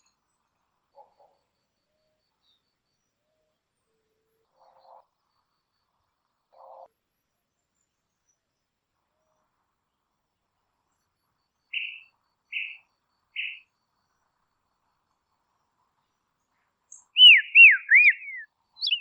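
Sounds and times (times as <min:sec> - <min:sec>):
small bird calling: 0:11.7 - 0:12.8, 0:13.4 - 0:13.6, 0:16.9 - 0:19.0.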